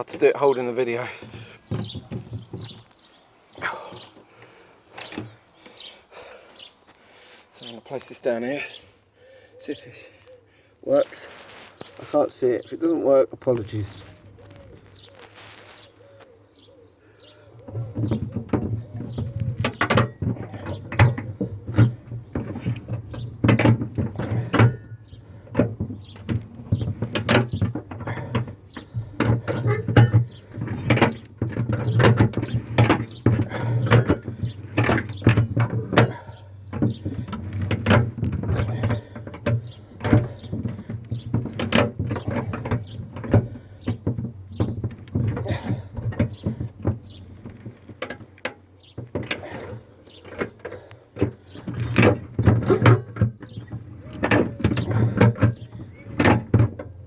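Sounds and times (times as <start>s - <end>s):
ratchet strap clicking and clunking: 1.0s - 3.0s, 3.6s - 5.9s, 17.6s - 57.0s.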